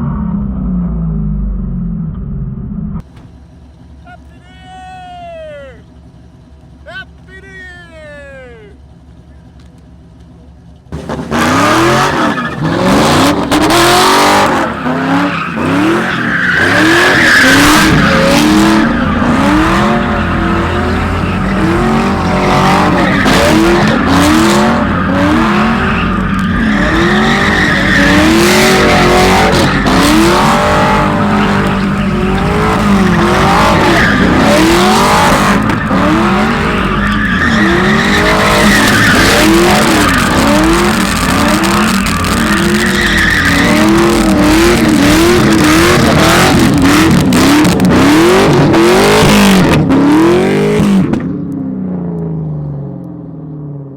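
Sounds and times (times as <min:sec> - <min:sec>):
car engine revving: 0:08.8 - 0:51.3
tyres squealing: 0:14.3 - 0:47.0.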